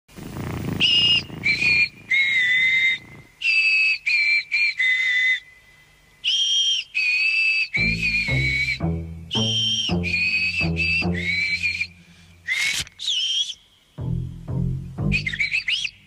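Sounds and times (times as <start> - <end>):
whistle playing a tune: 6.2 - 13.6, 15.0 - 16.0.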